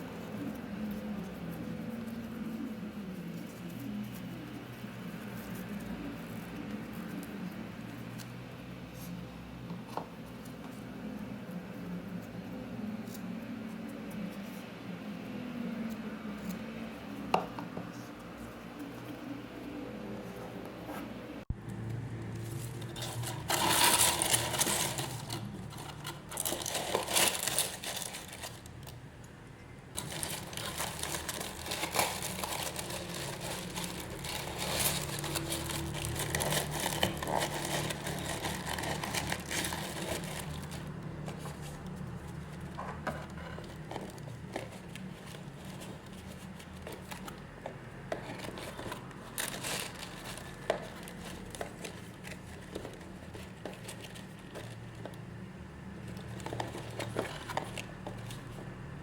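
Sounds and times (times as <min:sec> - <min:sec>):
plastic wrap crinkling: 0:22.4 - 0:29.0, 0:30.0 - 0:42.7, 0:48.1 - 0:58.8
plastic tearing: 0:22.8 - 0:28.7, 0:30.0 - 0:41.8, 0:48.2 - 0:55.2.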